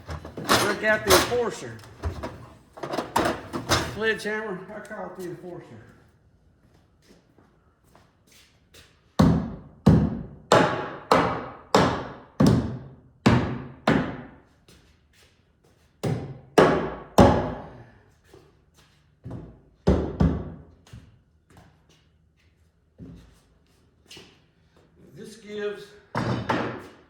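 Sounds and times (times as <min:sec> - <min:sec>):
sledgehammer thuds on wood: 0:16.0 - 0:17.7, 0:26.2 - 0:27.0.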